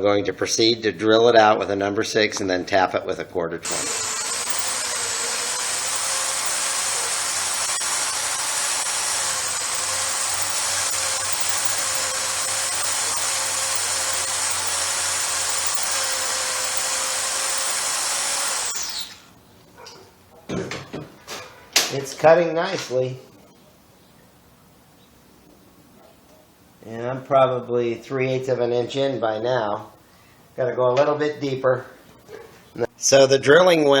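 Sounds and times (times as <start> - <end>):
electric drill running: 3.6 - 19.2.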